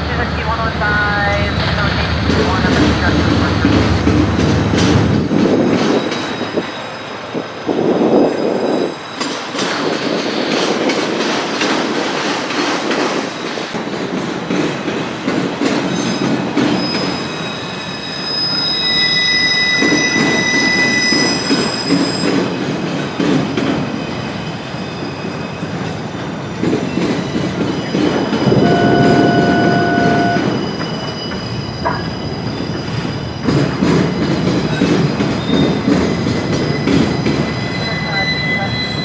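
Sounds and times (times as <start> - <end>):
train wheels rumbling and clattering: 0.0 - 39.0
lower squeal tone: 5.6 - 9.6, 16.8 - 22.3, 27.8 - 34.2, 36.6 - 39.0
high-pitched wheel squeal: 16.8 - 22.3, 28.3 - 33.7, 36.6 - 39.0.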